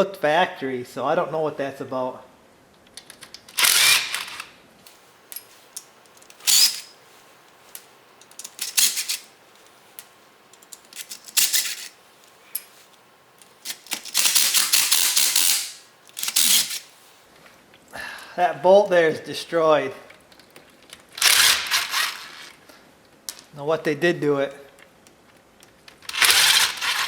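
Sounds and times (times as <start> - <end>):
ratchet wrench clicking: 3.6 - 4.5, 6.3 - 6.9, 13.7 - 16.9, 21.2 - 22.5, 26.1 - 27.0.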